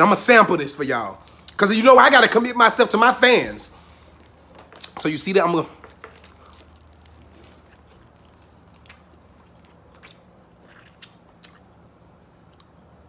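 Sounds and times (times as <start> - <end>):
low steady hum: 0.0 - 13.0
man chewing food: 3.8 - 5.0, 5.8 - 13.0.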